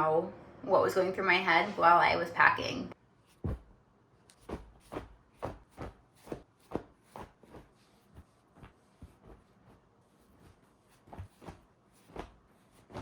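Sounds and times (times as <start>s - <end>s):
soft footsteps indoors: 3.2s - 13.0s.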